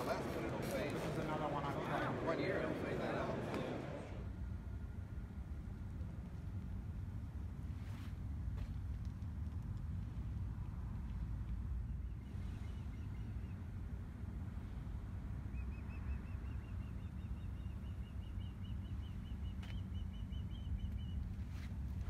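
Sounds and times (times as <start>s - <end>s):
bird chirping: 15.5s - 21.3s.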